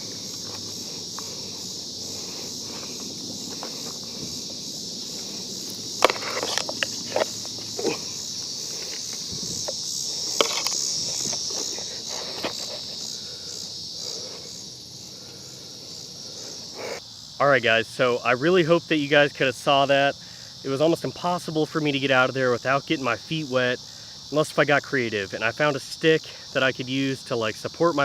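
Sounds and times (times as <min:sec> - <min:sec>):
footsteps and scuffs: 0:00.0 - 0:14.8
insects chirring: 0:00.0 - 0:28.0.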